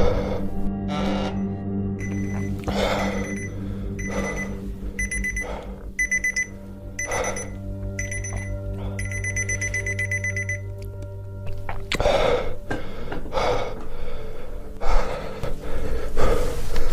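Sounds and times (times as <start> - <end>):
steady low hum: 0.0 - 11.4
electronic alarm beeping: 1.4 - 10.8.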